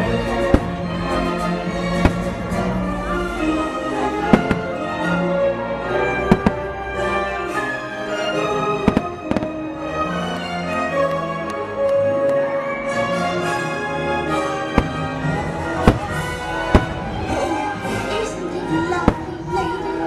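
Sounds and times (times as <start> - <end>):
orchestral music with strings: 0.0 - 20.0
fireworks bangs: 0.4 - 1.2, 1.9 - 2.7, 4.2 - 5.0, 6.2 - 6.8, 8.8 - 9.8, 14.7 - 17.5, 18.9 - 19.7.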